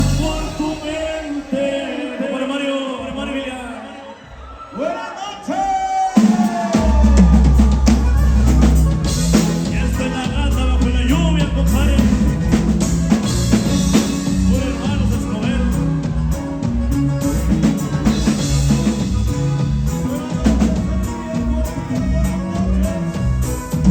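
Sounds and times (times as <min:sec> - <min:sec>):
deep bass line: 0:00.0 - 0:01.4, 0:06.8 - 0:23.9
band playing instrumental: 0:00.0 - 0:02.4, 0:06.2 - 0:23.9.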